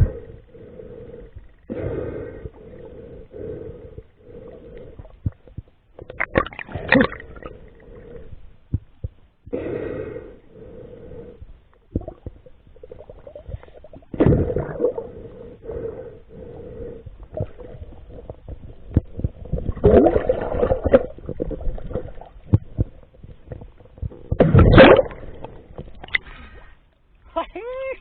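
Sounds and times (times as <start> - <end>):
muffled underwater gurgling: 11.9 - 26.2.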